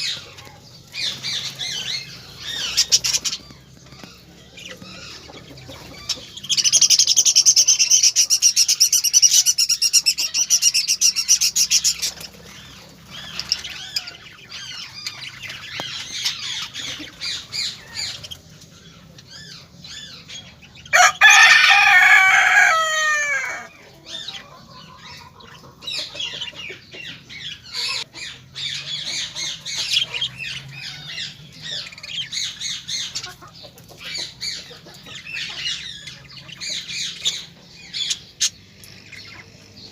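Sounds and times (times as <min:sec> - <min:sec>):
birds chattering and chirping: 0:00.0 - 0:39.9
rooster crowing: 0:20.9 - 0:23.8.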